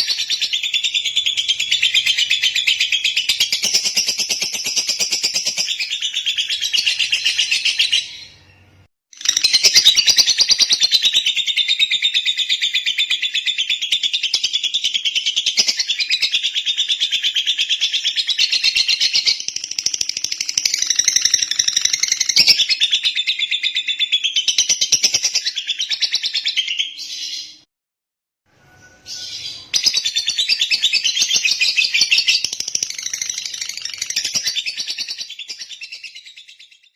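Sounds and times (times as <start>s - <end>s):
bird singing rapid trills: 18.0s - 27.0s, 28.9s - 36.9s.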